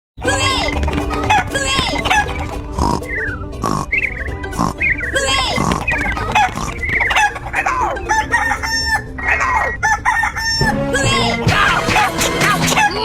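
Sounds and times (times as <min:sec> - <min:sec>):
chickens clucking: 0:00.2 - 0:10.9, 0:11.8 - 0:13.0
rooster crowing: 0:08.0 - 0:10.7.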